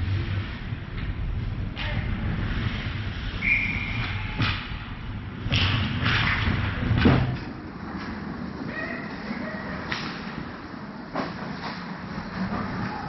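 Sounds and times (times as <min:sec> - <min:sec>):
rumble of skating: 0:00.0 - 0:13.0.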